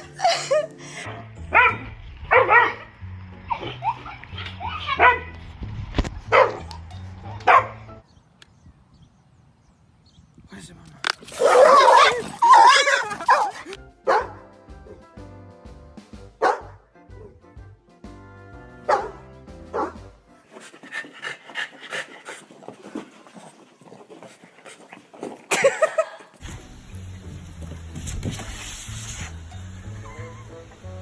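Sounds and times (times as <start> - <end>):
background music: 0.0 - 8.2, 11.8 - 21.3, 26.4 - 31.0
dog barking: 1.1 - 2.9, 4.9 - 5.3, 6.3 - 6.7, 7.4 - 7.8, 11.4 - 14.4, 16.4 - 16.8, 18.9 - 20.0.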